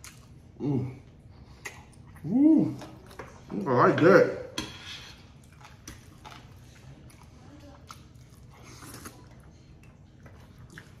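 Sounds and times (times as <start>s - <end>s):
man chewing: 0.0s - 3.6s, 4.6s - 11.0s.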